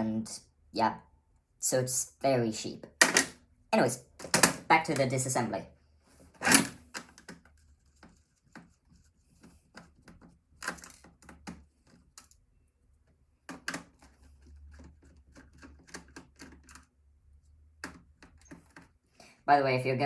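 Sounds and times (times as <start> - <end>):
screwdriver and computer parts clicking: 3.0 - 3.4, 4.2 - 5.2, 6.4 - 7.4, 10.6 - 12.4.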